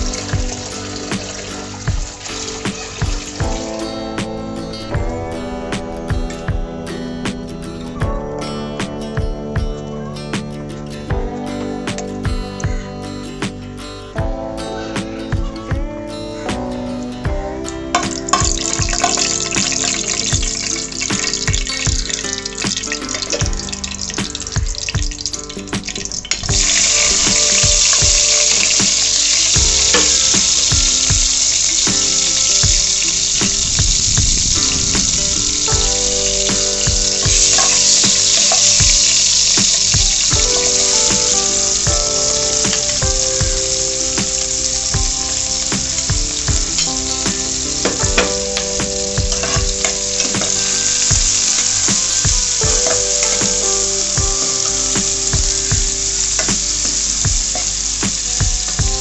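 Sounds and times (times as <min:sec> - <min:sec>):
vegetables sizzling in hot oil: 0:00.0 - 0:03.8, 0:17.9 - 0:59.0.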